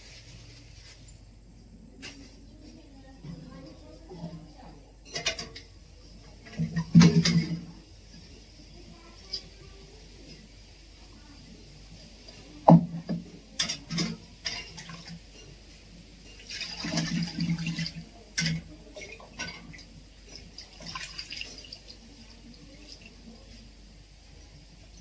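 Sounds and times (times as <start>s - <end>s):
water splashing and sloshing: 5.4s - 7.8s, 16.2s - 23.6s.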